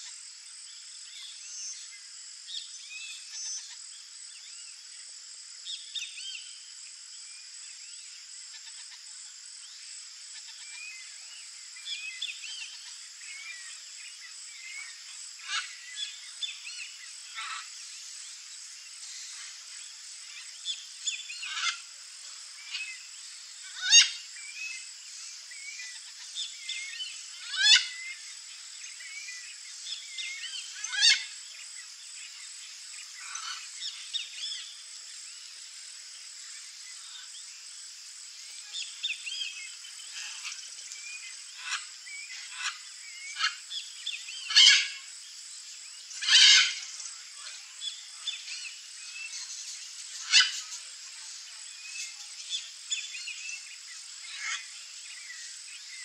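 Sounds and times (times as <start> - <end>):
birds chirping and calling: 20.3 - 21.9, 23.7 - 24.8, 25.6 - 28.2, 28.9 - 31.4, 38.6 - 45.0, 46.1 - 56.0
loud harsh bird calls: 23.7 - 24.2, 27.4 - 28.1, 44.4 - 45.0, 46.1 - 46.9.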